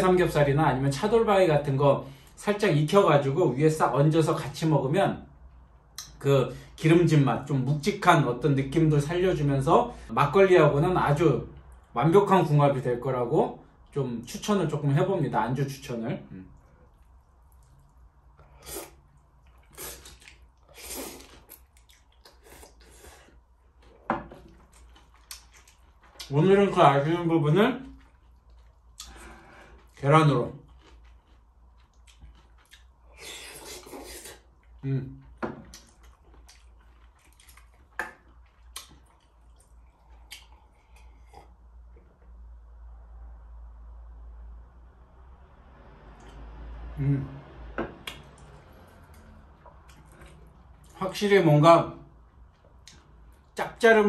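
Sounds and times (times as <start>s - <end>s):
wet chewing clicks: 16.5s - 22.9s, 24.5s - 26.4s, 27.7s - 41.6s, 48.0s - 51.0s
person eating noodles: 16.6s - 26.3s, 30.6s - 41.6s
slurping noodles: 18.4s - 23.4s, 33.1s - 34.5s.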